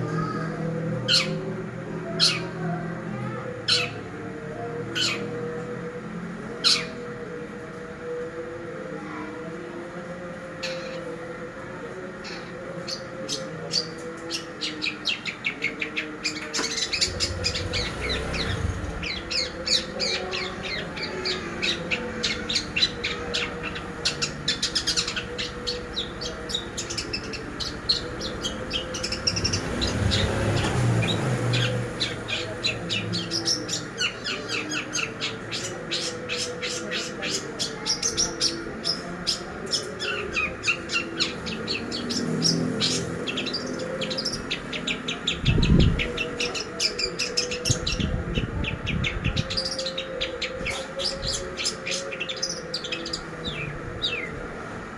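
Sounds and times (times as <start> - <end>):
bird chattering song: 12.2 - 54.3.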